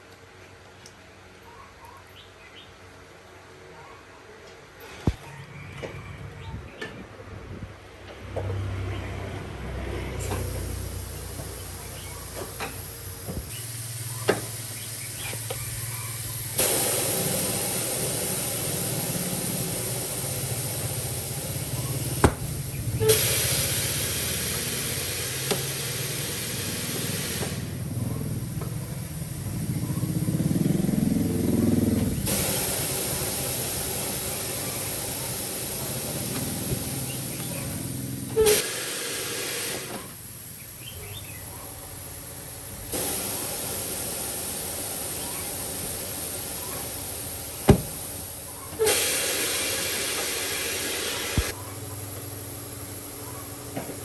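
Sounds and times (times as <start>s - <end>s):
compressed air hissing: 10.1s - 51.6s.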